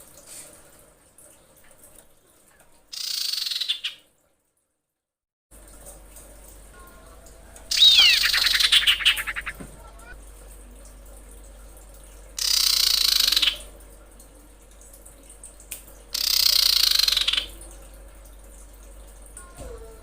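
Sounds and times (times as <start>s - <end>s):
bird harsh chattering calls: 7.7s - 10.1s, 12.4s - 13.7s.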